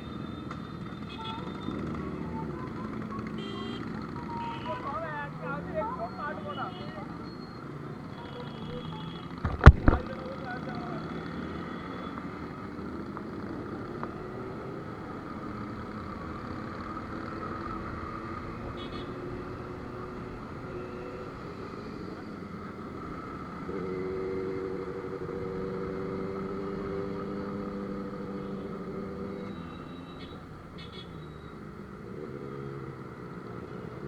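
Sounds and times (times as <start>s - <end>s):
road noise: 0.0s - 34.0s.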